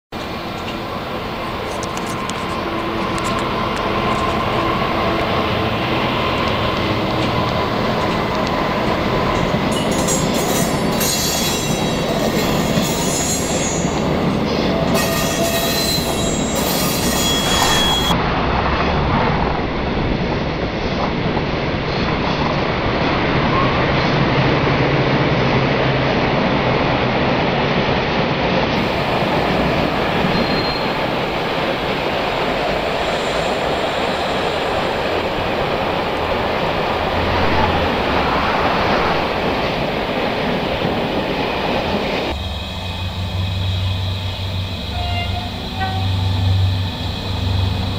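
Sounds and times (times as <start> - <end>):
train rolling on track: 0.1 - 47.9
thin squealing tones: 9.4 - 18.2, 30.2 - 31.2, 42.4 - 47.9.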